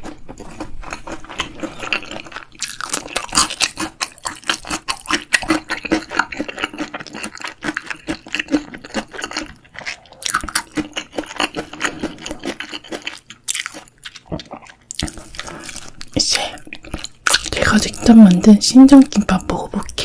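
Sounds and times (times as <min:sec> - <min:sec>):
chewing crunchy fried food: 0:00.0 - 0:18.5.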